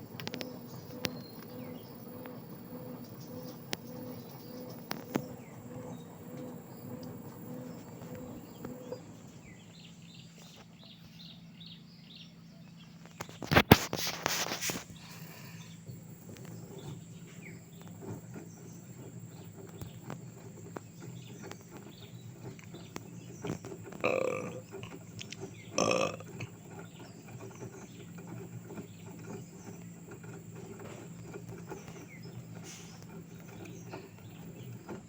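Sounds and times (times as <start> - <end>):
dove cooing: 24.0 - 25.0, 25.6 - 26.6.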